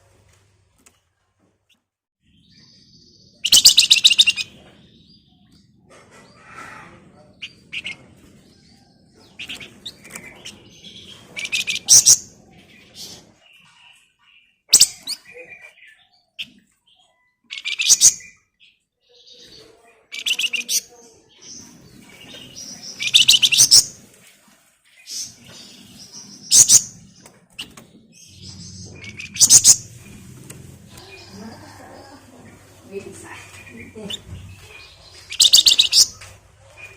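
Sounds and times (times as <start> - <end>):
songbird chattering: 3.3 - 4.6, 7.4 - 8.0, 22.3 - 23.9, 26.3 - 26.9, 28.2 - 30.2, 30.9 - 36.9
soft bird chirps: 24.8 - 36.9.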